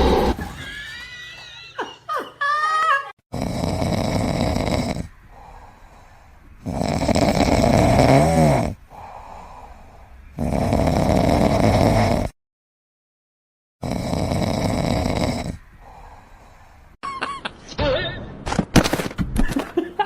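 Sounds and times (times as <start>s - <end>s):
pet snoring: 3.3s - 5.1s, 6.6s - 9.4s, 10.3s - 12.4s, 13.8s - 16.0s
whistling snore: 6.6s - 8.8s, 10.3s - 12.3s, 13.8s - 15.6s.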